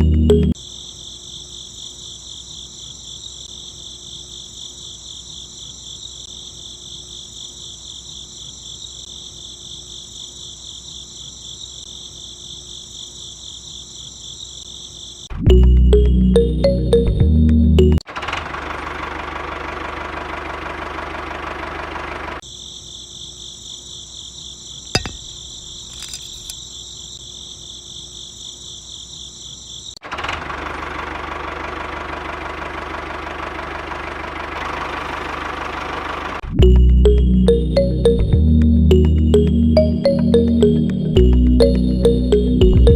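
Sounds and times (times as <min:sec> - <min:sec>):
background music: 0:00.0 - 0:00.6, 0:15.5 - 0:18.0, 0:36.6 - 0:42.9
small motor hum and rattle: 0:18.1 - 0:22.4, 0:30.0 - 0:36.4.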